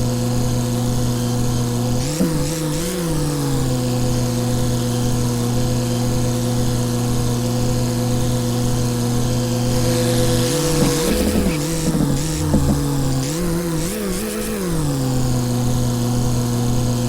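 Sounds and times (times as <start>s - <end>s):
tractor diesel engine running: 9.1s - 13.6s.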